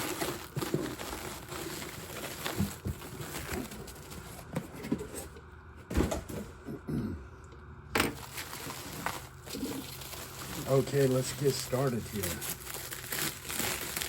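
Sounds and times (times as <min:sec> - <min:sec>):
packing wrap rustling: 0:00.0 - 0:04.6, 0:08.1 - 0:14.0
wrapped items knocking in a box: 0:00.0 - 0:05.0, 0:08.0 - 0:14.0.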